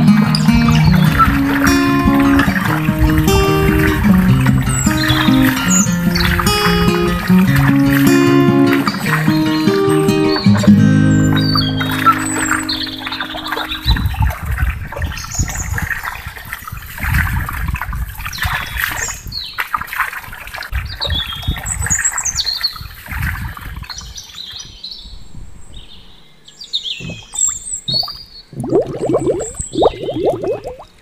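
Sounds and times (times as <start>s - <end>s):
water trickling into plastic basin: 0.0s - 9.4s, 27.0s - 31.0s
small birds chirping: 0.0s - 15.8s, 23.9s - 31.0s.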